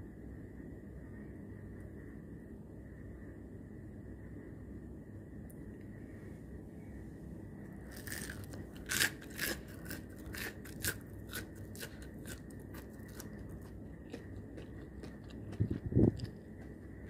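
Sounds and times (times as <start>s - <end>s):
crunchy food being bitten: 7.7s - 17.0s.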